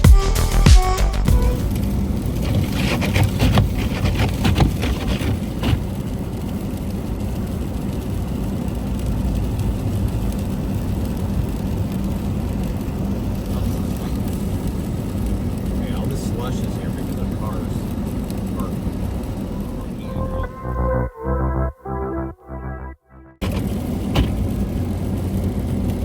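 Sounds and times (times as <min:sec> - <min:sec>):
crackles and clicks: 0:01.6 - 0:22.5
traffic engine and road rumble: 0:05.0 - 0:20.7.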